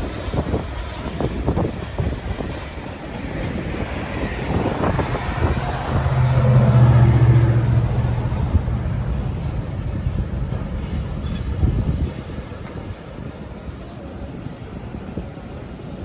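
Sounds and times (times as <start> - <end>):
diesel locomotive engine hum: 0.0 - 16.0
train rolling past: 0.0 - 16.0.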